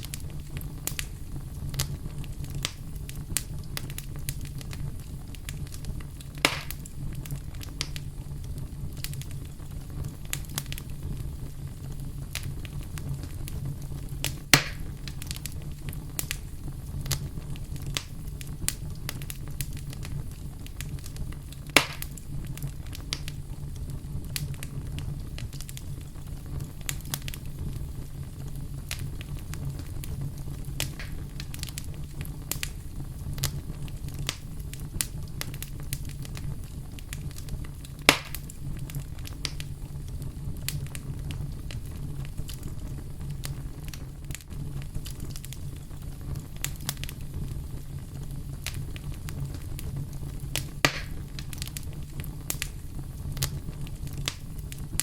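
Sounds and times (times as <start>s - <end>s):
campfire crackling: 0.0s - 55.0s
loud pops from burning wood: 0.0s - 55.0s
low rush of flames: 0.0s - 55.0s.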